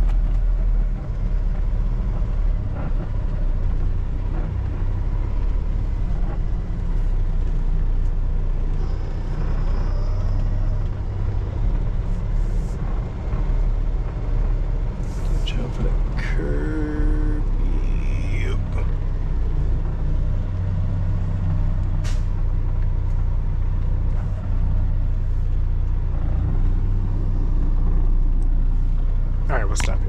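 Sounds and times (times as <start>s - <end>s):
truck diesel engine running: 0.0s - 30.0s.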